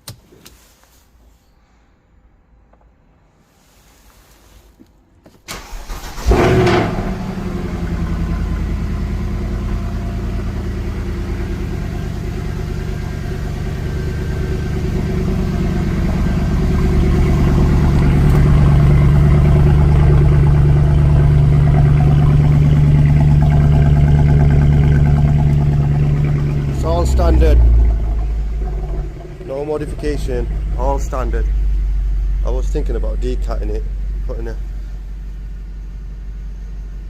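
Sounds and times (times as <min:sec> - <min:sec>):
car engine idling: 0:05.5 - 0:37.0.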